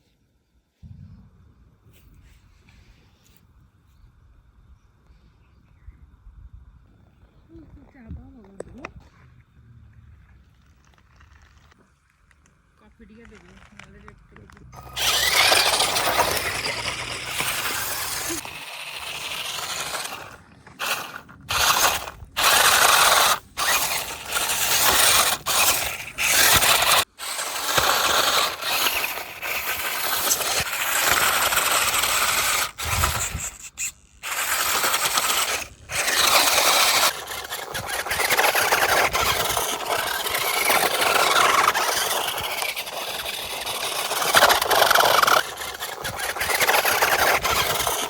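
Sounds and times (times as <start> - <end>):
rc car drivetrain whirring: 12.9 - 48.0.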